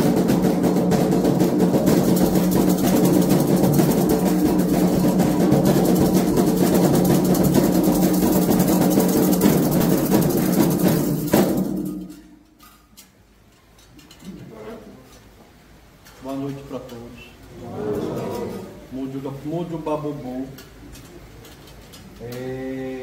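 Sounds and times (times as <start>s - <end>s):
hand drums fast rhythm: 0.0s - 12.2s.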